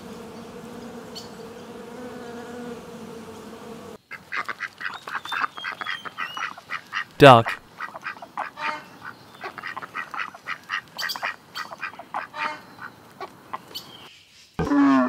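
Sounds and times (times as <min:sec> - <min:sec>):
ducks quacking: 0:04.1 - 0:13.3.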